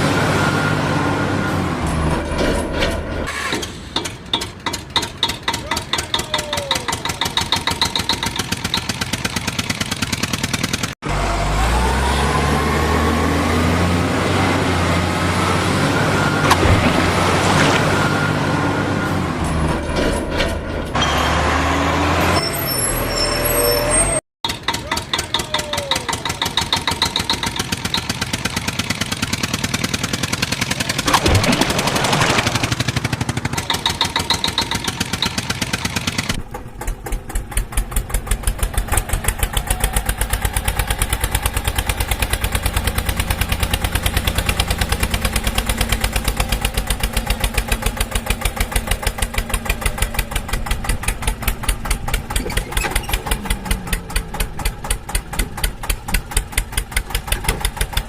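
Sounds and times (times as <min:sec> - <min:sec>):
tractor diesel engine knocking: 0:03.9 - 0:11.0, 0:24.4 - 0:31.2, 0:32.7 - 0:58.0.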